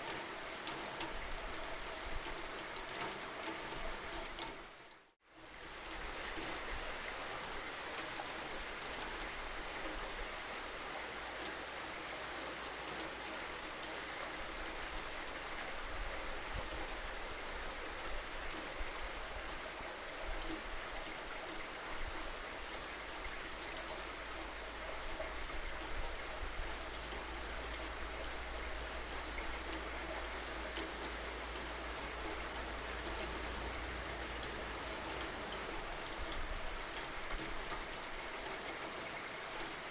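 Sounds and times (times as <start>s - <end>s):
raindrops ticking on surface: 0.0s - 5.2s, 20.3s - 39.9s
steady rainfall: 0.0s - 39.9s.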